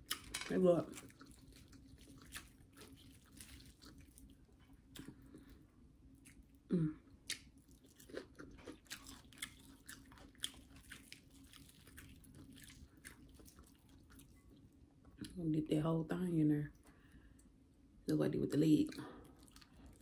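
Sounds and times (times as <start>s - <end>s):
person chewing crunchy food: 0.9s - 14.7s, 19.2s - 20.0s.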